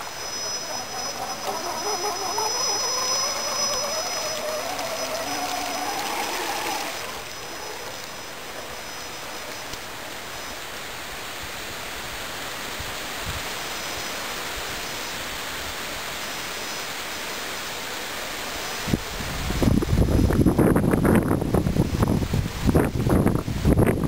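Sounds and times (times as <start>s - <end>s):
toy truck motor whining: 0.0s - 9.8s
steady rushing noise: 0.0s - 14.6s.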